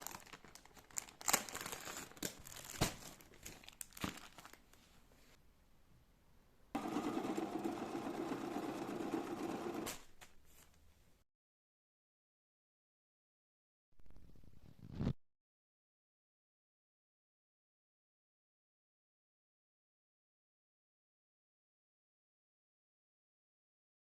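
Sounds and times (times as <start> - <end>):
crinkling and rustling: 0.0 - 5.4, 9.9 - 10.9.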